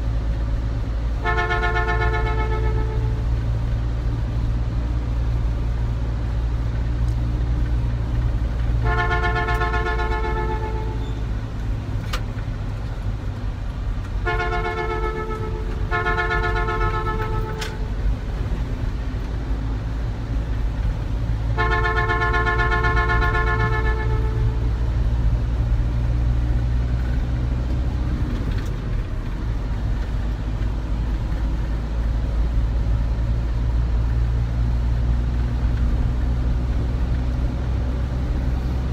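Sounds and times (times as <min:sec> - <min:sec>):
vehicle engine rumble: 0:00.0 - 0:38.9
vehicle horn blasts: 0:01.2 - 0:03.3, 0:08.8 - 0:11.3, 0:14.1 - 0:18.0, 0:21.5 - 0:24.8.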